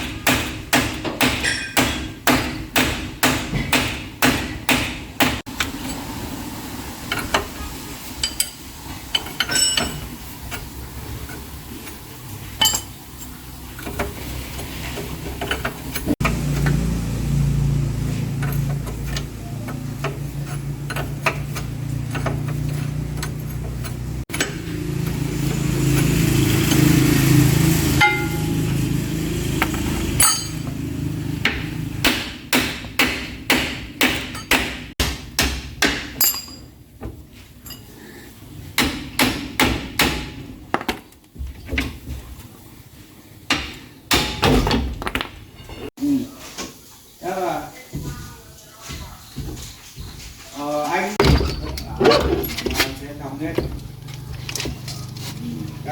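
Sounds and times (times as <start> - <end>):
hammer striking metal: 0.0 - 5.4, 28.0 - 28.8, 30.1 - 30.7, 31.5 - 36.7.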